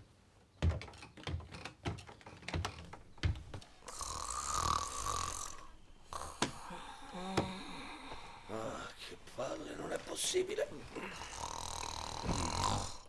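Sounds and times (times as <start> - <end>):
sharp irregular clicks and knocks: 0.6 - 3.7
person snoring with whistle: 3.9 - 8.0, 11.3 - 13.0.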